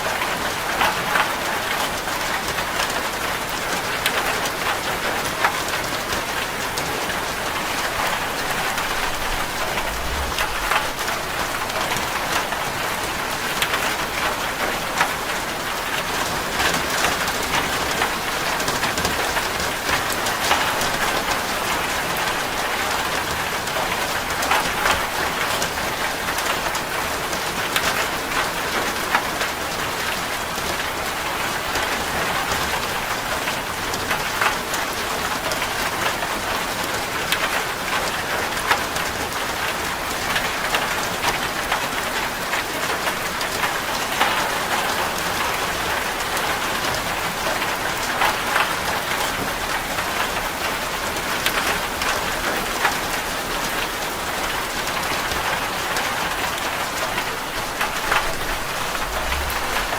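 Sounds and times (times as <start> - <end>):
rain on a metal roof: 0.0 - 59.9.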